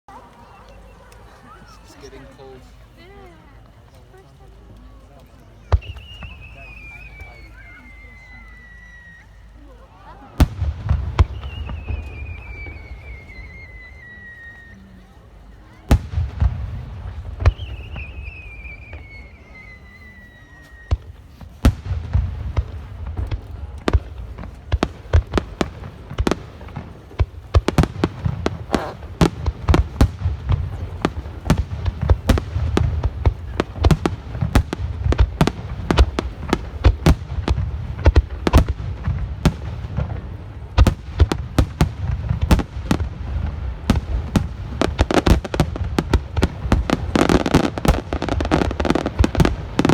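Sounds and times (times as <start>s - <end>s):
firework bangs: 5.6s - 7.9s, 10.3s - 14.8s, 15.5s - 49.9s
falling firework whistle: 5.7s - 9.5s, 11.0s - 15.0s, 17.4s - 21.9s.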